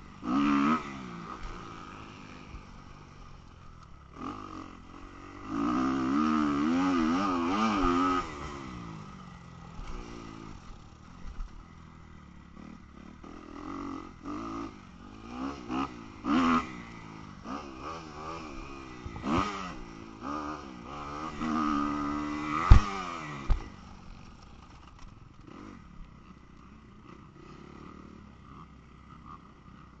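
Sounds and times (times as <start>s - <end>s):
dirt bike engine revving: 0.0s - 3.4s, 4.0s - 24.2s.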